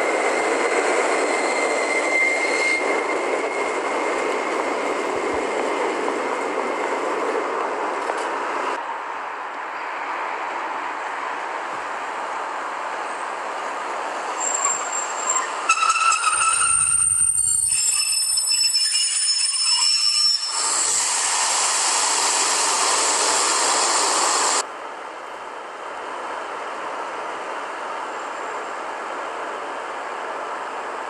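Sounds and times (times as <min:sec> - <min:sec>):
train rolling rumble: 0:00.0 - 0:08.8, 0:10.4 - 0:19.2
high-pitched wheel squeals: 0:00.2 - 0:04.0, 0:14.3 - 0:21.1.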